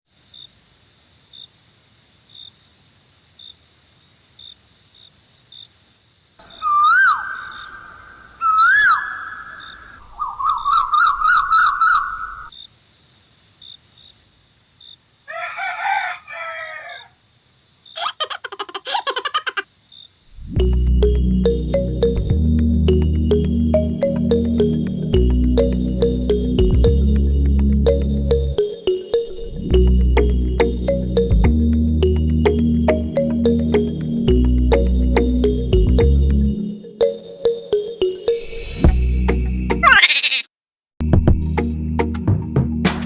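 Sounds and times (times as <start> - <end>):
bird trilling call: 6.4 - 12.5, 39.8 - 40.5
bird whistled calls: 6.4 - 12.5
rooster crowing: 15.3 - 17.2.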